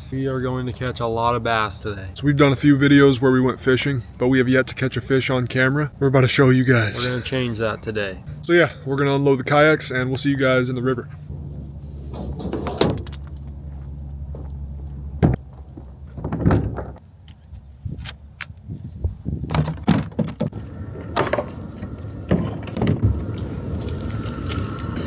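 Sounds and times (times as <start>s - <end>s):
low steady hum: 0.0s - 17.0s, 20.5s - 25.0s.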